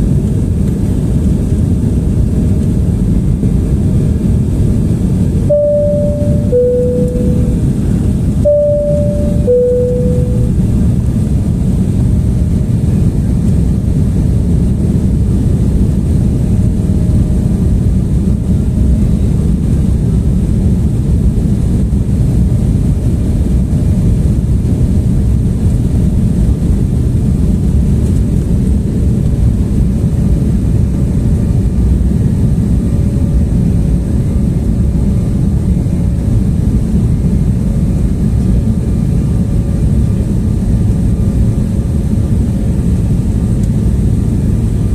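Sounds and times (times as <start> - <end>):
jet engines and airflow roar: 0.0 - 44.9
faint steady hum: 5.5 - 12.0.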